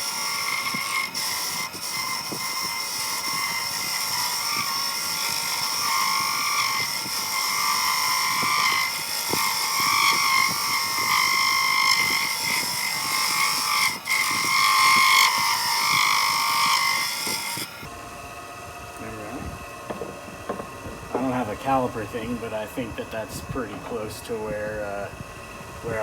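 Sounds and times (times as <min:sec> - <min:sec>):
chisel cutting wood on lathe: 0:00.0 - 0:17.9
lathe motor hum: 0:00.0 - 0:26.0.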